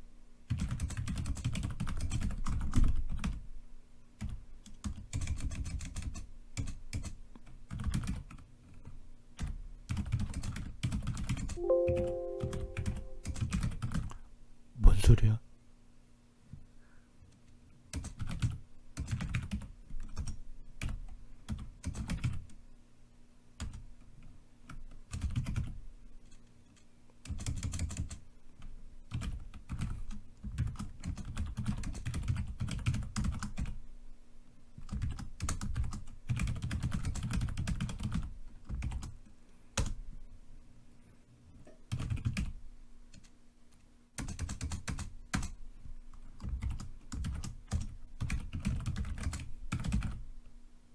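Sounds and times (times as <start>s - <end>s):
typing on computer keyboard: 0.5s - 3.4s, 4.2s - 8.8s, 9.4s - 14.1s, 17.9s - 22.6s, 23.6s - 25.8s, 27.2s - 33.8s, 34.8s - 39.2s, 39.8s - 40.0s, 41.9s - 43.4s, 44.2s - 45.6s, 46.4s - 50.2s.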